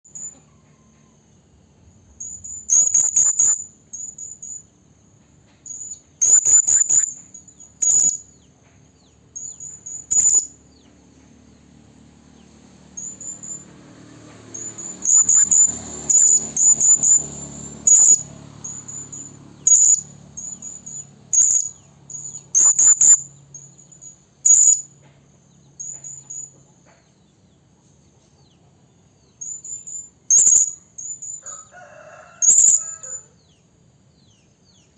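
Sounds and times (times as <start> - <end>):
loud sharp bird calls: 2.2 - 4.6, 5.6 - 11.0, 12.4 - 25.0, 29.2 - 33.6
parrot shrill high calls: 2.7 - 4.3, 5.7 - 8.3, 9.4 - 10.5, 14.6 - 23.3, 29.4 - 33.4.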